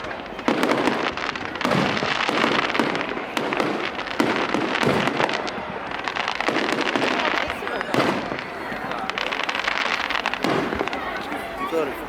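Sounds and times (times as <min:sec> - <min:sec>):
fireworks bangs: 0:00.0 - 0:12.0
sharp crackling: 0:00.0 - 0:12.0.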